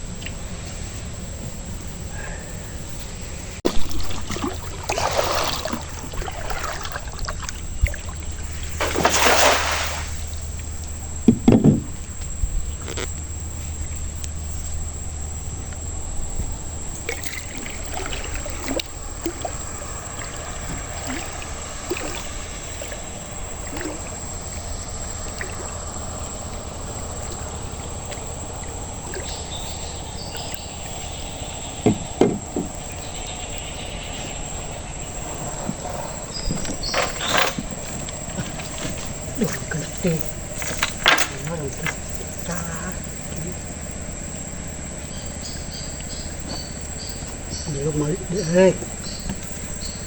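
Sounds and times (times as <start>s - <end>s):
high insect drone: 0.0s - 50.0s
water trickling and pouring: 3.7s - 10.7s, 16.9s - 31.4s, 34.4s - 43.6s
light knocks: 11.2s - 12.3s, 31.8s - 33.0s.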